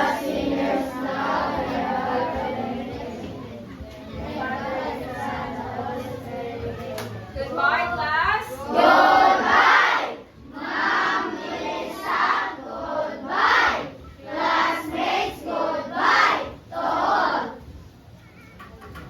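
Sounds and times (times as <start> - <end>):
children chanting in unison: 0.0 - 7.4, 8.6 - 17.6.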